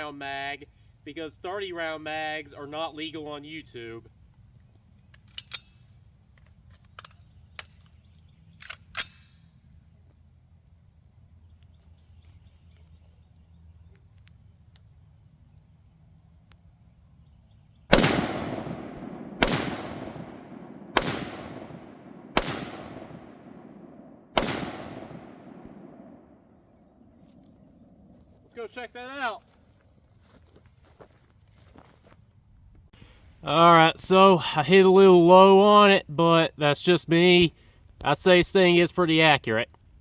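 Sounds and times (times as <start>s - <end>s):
rifle shots ringing out: 17.9s - 26.6s.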